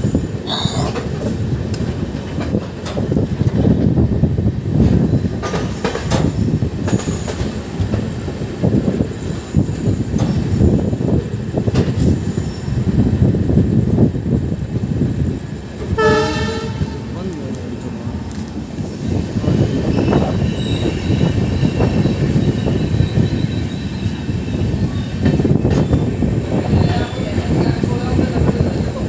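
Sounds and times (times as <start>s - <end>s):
train wheels rumbling: 0.0s - 29.0s
wheels clacking over rail joints: 4.7s - 14.0s.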